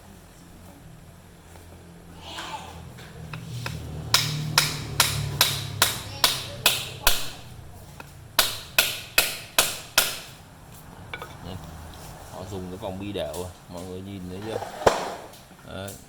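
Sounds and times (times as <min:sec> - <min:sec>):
hammer striking metal shaft: 0:03.3 - 0:10.4.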